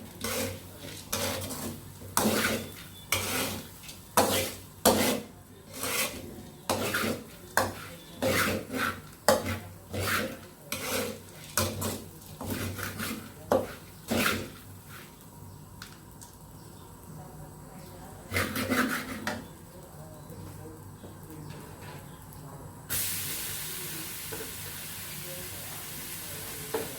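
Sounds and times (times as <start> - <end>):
utensil scraping a cooking pot: 0.0 - 15.2, 18.1 - 19.6.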